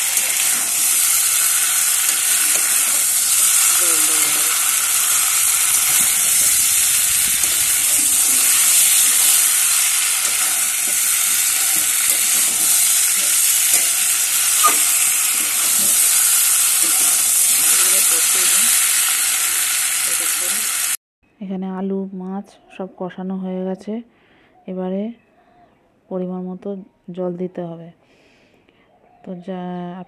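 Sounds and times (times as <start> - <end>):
spatula scraping pan: 0.0 - 18.7
food sizzling in oil: 0.0 - 21.0.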